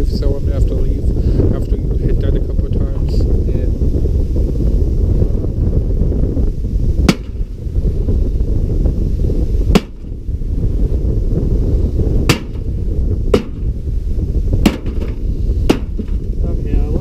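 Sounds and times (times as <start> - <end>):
wind rumbling on microphone: 0.0 - 17.0
microwave oven struck hard: 7.0 - 7.4, 9.7 - 10.1, 12.3 - 12.7, 13.3 - 13.7, 14.6 - 16.2.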